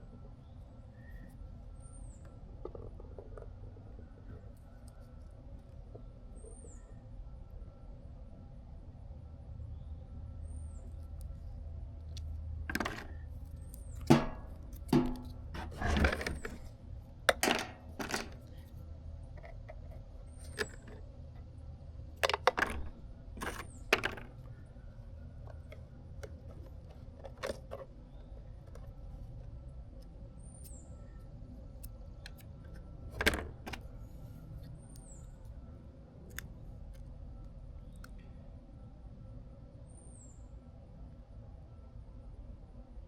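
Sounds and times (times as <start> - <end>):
small parts and tools clinking: 17.3 - 18.7, 22.2 - 24.6.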